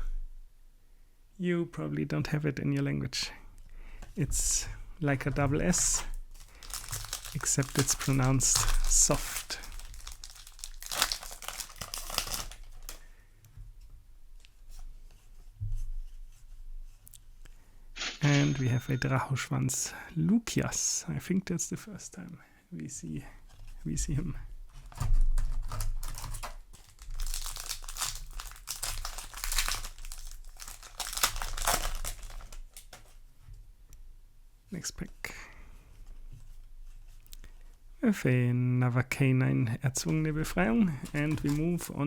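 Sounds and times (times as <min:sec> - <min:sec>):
foil pack and cards crinkling: 0:05.7 - 0:13.1, 0:24.8 - 0:33.2, 0:40.0 - 0:42.0.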